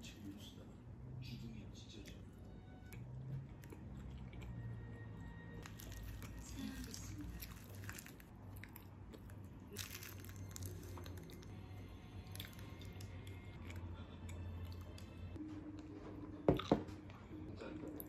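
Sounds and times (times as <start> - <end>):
person chewing: 2.9 - 15.2.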